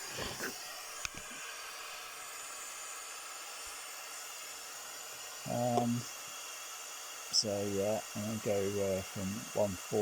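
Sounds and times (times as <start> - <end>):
pink noise hiss through loudspeakers: 5.4 - 6.1, 7.3 - 10.0.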